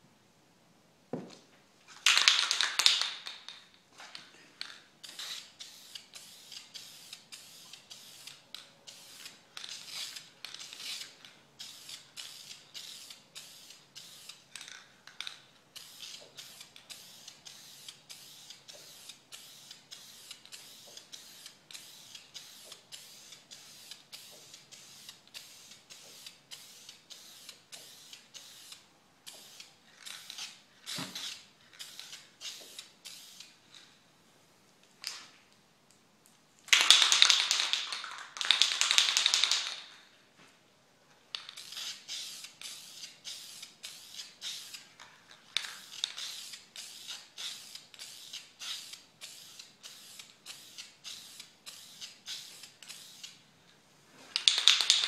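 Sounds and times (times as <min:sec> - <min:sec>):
spray can hissing bursts: 0:05.0 - 0:14.6, 0:15.7 - 0:33.6, 0:41.5 - 0:44.9, 0:45.6 - 0:53.4.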